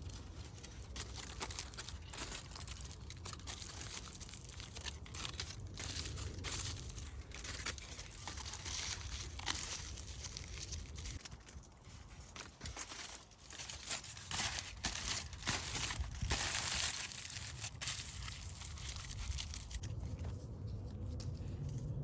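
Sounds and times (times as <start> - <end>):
crinkling handling noise: 0.0 - 22.0
low rumble: 17.2 - 22.0.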